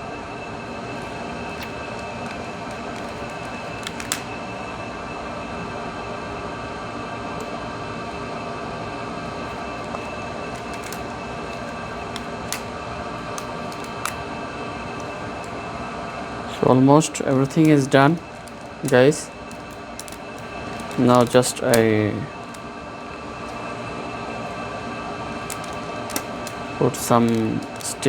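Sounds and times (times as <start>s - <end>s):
steady mechanical hum: 0.0s - 28.0s
small clicks and taps: 1.6s - 4.2s, 19.5s - 21.4s, 25.5s - 26.6s.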